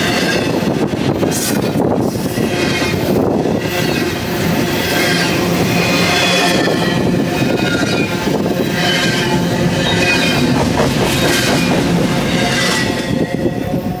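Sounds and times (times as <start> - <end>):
freight train wheels rumbling: 0.0 - 14.0
high wheel squeals: 2.2 - 14.0.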